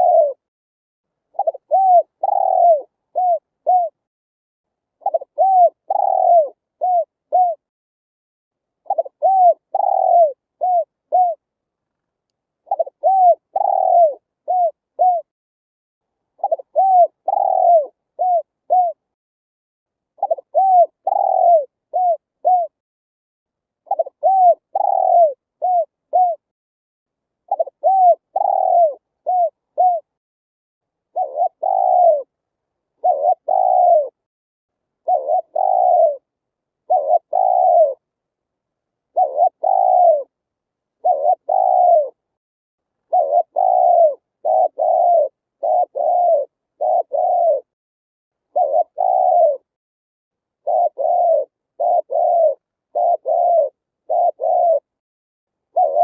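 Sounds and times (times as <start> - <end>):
dove cooing: 0.0 - 0.5, 1.3 - 4.0, 5.0 - 7.7, 8.8 - 11.4, 12.6 - 15.3, 16.4 - 19.0, 20.2 - 22.8, 23.8 - 26.5, 27.5 - 30.2, 31.1 - 32.3, 33.0 - 34.2, 35.0 - 38.1, 39.1 - 40.4, 41.0 - 42.2, 43.1 - 47.8, 48.5 - 49.8, 50.6 - 55.0, 55.7 - 56.0.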